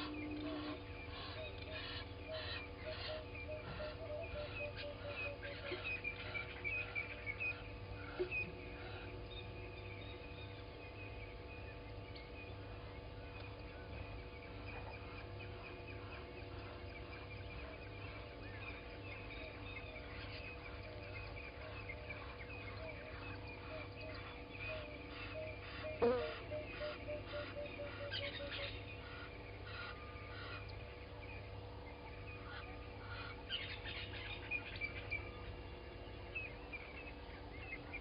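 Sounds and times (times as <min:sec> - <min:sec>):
birds chirping: 0:00.0 - 0:38.0
low background hum: 0:00.0 - 0:38.0.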